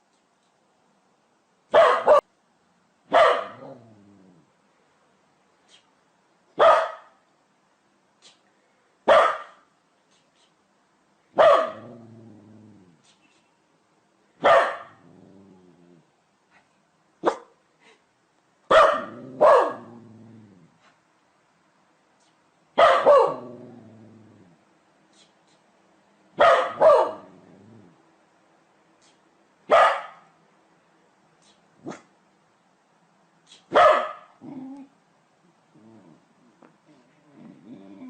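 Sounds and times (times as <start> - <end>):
dog barking: 1.7 - 2.3, 3.1 - 3.7, 6.6 - 7.2, 9.0 - 9.7, 11.4 - 11.9, 14.4 - 15.0, 17.2 - 17.6, 18.7 - 19.9, 22.8 - 23.5, 26.4 - 27.3, 29.7 - 30.4, 31.8 - 32.1, 33.7 - 34.4.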